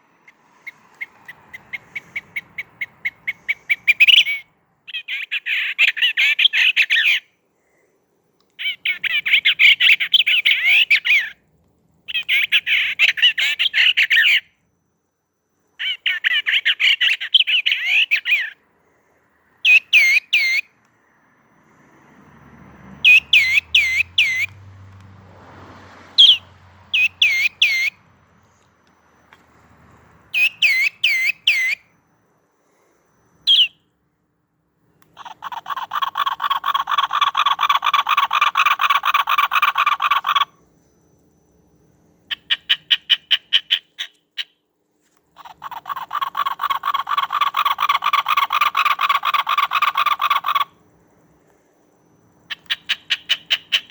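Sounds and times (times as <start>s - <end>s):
sharp sweeping bird chirps: 0.0s - 7.4s, 8.6s - 11.4s, 19.5s - 22.2s, 22.9s - 24.8s, 26.0s - 32.0s, 32.6s - 34.0s
rapid harsh bird chattering: 0.3s - 7.3s, 8.6s - 11.4s, 12.1s - 14.5s, 15.8s - 18.6s, 19.6s - 20.7s, 23.0s - 24.5s, 26.2s - 28.0s, 30.3s - 31.8s, 33.5s - 33.8s, 35.2s - 40.6s, 42.3s - 44.6s, 45.4s - 50.8s, 52.5s - 53.9s.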